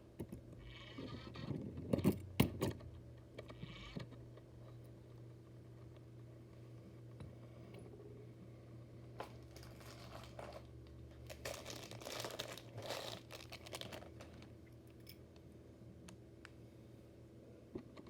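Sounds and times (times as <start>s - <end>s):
steady low hum: 0.0s - 18.0s
crinkling rustle: 9.2s - 14.6s.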